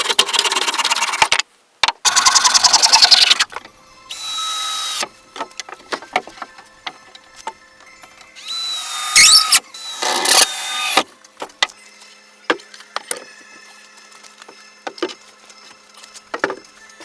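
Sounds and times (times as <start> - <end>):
power tool whining: 2.1 - 6.2, 8.2 - 11.1.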